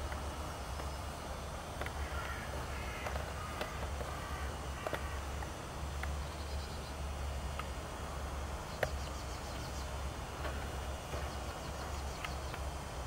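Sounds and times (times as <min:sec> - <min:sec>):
distant birds calling: 0:00.0 - 0:13.0
low steady rumble: 0:00.0 - 0:13.0.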